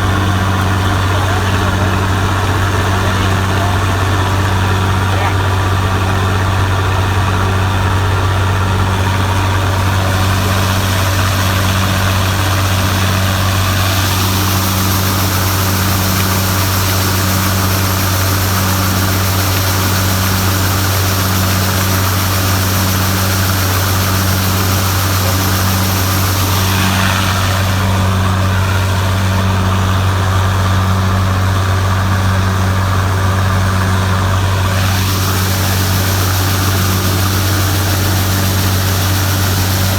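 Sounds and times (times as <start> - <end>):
diesel engine running: 0.0 - 39.9
high hiss: 8.8 - 28.9, 34.5 - 39.9.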